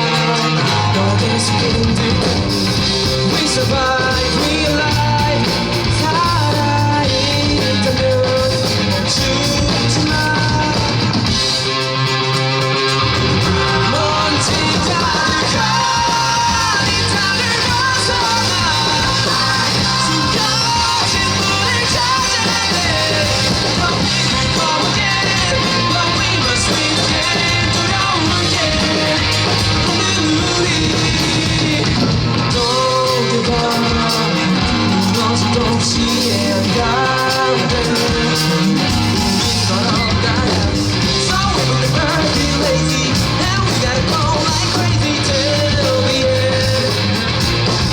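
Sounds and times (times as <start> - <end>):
singer's vocals: 0.0 - 12.0, 12.8 - 47.9
electric guitar: 0.0 - 47.9
rock band playing live: 0.0 - 47.9.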